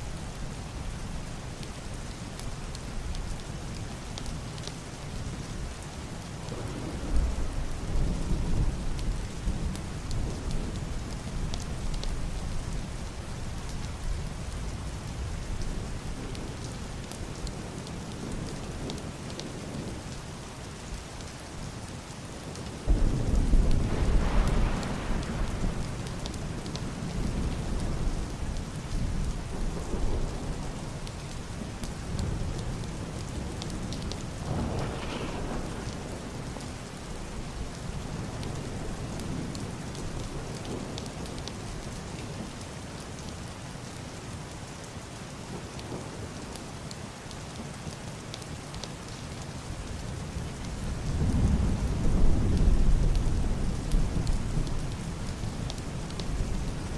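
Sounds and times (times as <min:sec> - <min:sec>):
heavy rain on roof and window: 0:00.0 - 0:56.9
thunder rumble: 0:22.9 - 0:31.0, 0:32.1 - 0:41.0.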